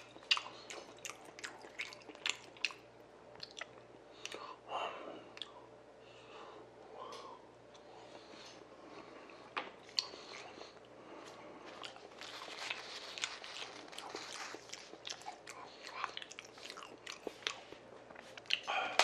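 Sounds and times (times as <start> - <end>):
close chewing with mouth clicks: 0.0 - 4.5, 9.3 - 18.7.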